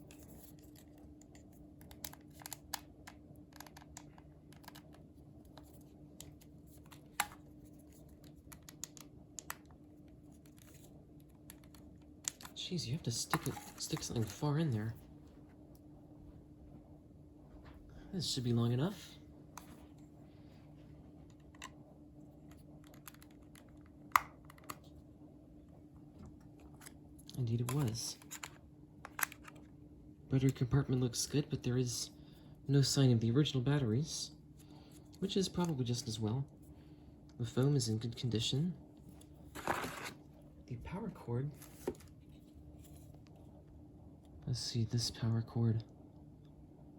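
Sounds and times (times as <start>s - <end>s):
faint steady hum: 0.0s - 46.9s
plastic handling clicks and taps: 0.2s - 7.4s, 8.2s - 9.7s, 22.8s - 24.9s, 26.3s - 29.6s.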